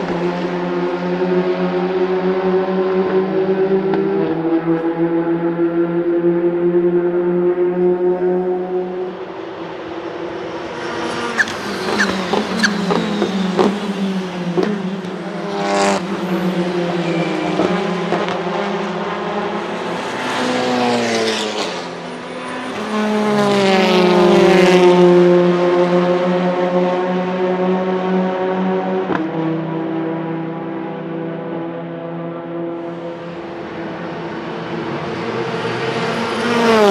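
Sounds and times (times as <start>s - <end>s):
car engine running: 10.2s - 15.5s.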